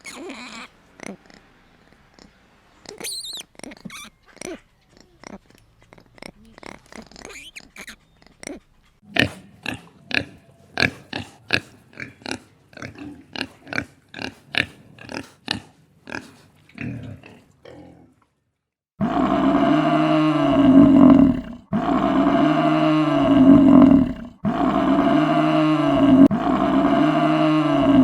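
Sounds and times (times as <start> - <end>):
short animal calls: 0.0 - 5.4.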